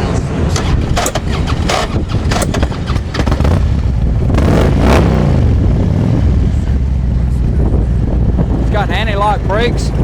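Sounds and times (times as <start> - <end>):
motorcycle engine idling and revving: 0.0 - 10.0.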